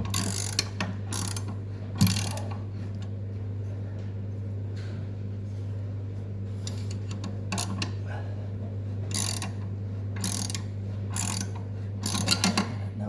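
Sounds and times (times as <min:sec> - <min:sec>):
steady low hum: 0:00.0 - 0:13.0
socket ratchet clicking: 0:00.1 - 0:02.4, 0:11.2 - 0:12.6.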